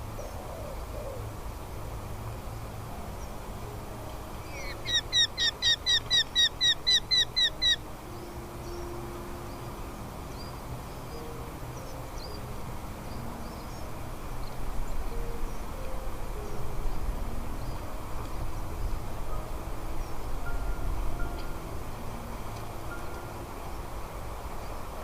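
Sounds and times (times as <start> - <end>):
falcon calling: 4.6 - 7.8.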